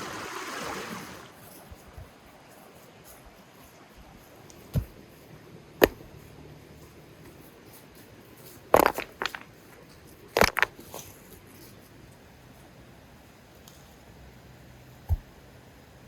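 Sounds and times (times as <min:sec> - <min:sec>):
hard objects knocking: 0:08.8 - 0:09.5.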